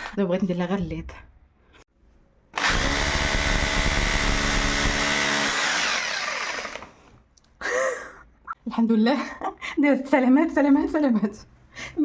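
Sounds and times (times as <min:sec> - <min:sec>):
hammer drill boring into wall: 0:02.6 - 0:07.0.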